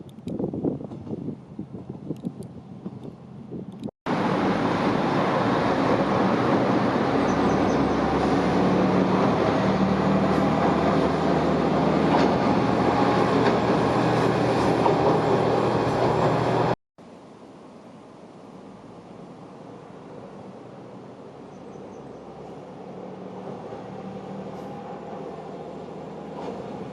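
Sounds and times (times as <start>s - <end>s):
diesel railcar engine drone: 0.0s - 26.9s
train wheel and rail noise: 0.0s - 26.9s.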